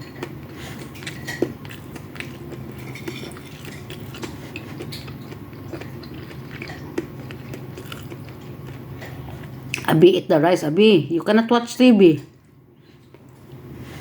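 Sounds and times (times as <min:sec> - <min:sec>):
chewing and biting food: 0:00.0 - 0:09.9
steady low hum: 0:00.0 - 0:14.0.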